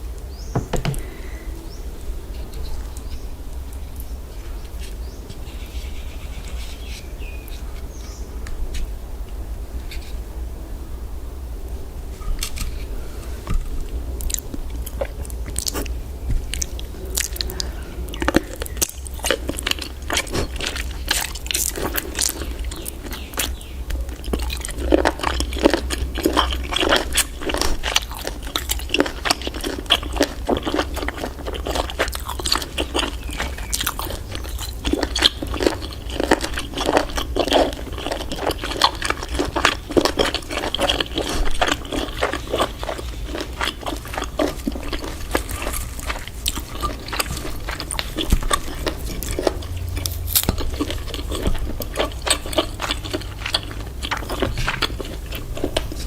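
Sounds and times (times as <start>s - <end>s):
steady low hum: 0.0s - 56.0s
person chewing wet clicks and smacks: 14.2s - 56.0s.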